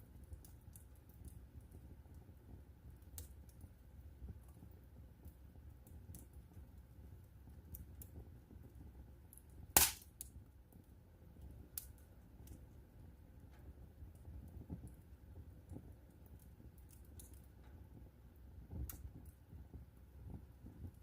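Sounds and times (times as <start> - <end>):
wood fire crackling: 0.0 - 21.0
loud sharp pop of fire: 9.7 - 10.3.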